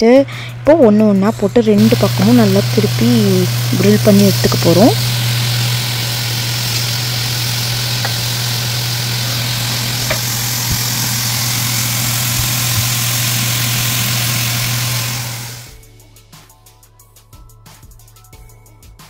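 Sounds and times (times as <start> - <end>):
low hum: 0.2 - 15.7
pineapple sizzling on a grill pan: 1.8 - 15.7.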